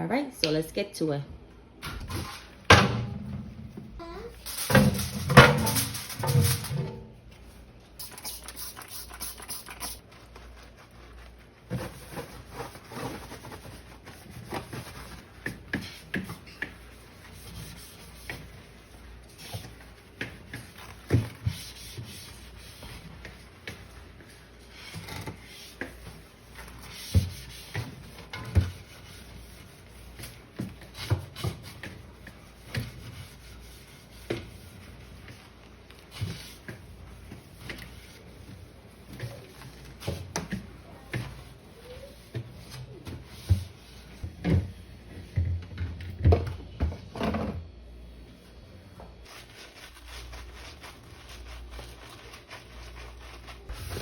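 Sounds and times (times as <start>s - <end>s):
containers and shelves clattering: 4.5s - 7.2s
scrubbing: 8.0s - 44.2s, 49.2s - 54.0s.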